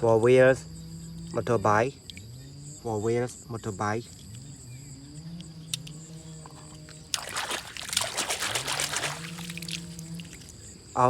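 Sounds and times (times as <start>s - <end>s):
water splashing and sloshing: 5.8s - 10.9s.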